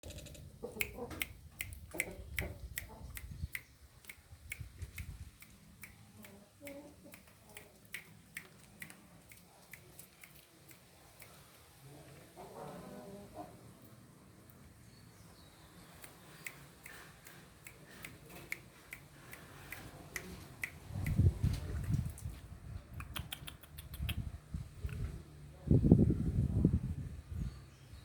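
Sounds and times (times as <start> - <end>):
sharp irregular clicks: 0.0 - 11.4
chicken clucking: 0.5 - 3.4.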